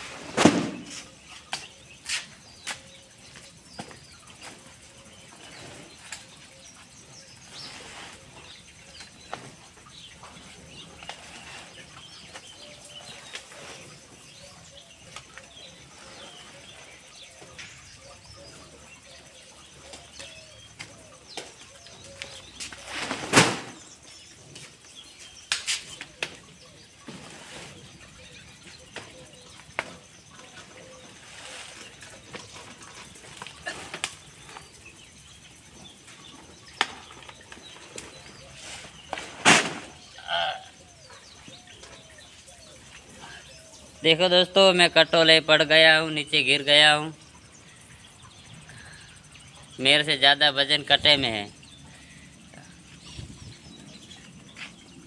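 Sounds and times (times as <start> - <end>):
birds chirping: 0.0 - 55.0
loud thump: 0.3 - 0.9.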